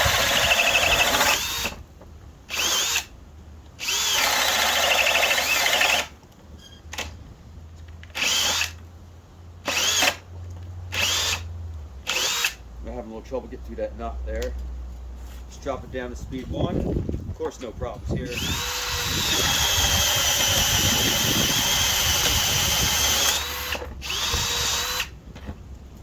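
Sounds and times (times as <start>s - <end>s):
hammer drill boring wood: 0.0s - 1.8s, 2.5s - 3.1s, 3.8s - 6.1s, 8.2s - 8.8s, 9.7s - 10.2s, 10.9s - 11.4s, 12.1s - 12.6s, 18.3s - 25.1s.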